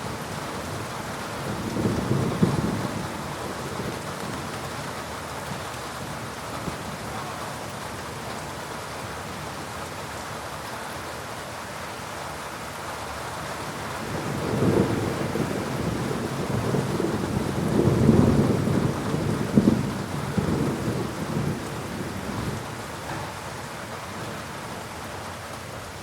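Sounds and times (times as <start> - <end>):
thunder rumbling: 0.0 - 4.6, 14.0 - 25.0
heavy rain falling: 0.0 - 26.0.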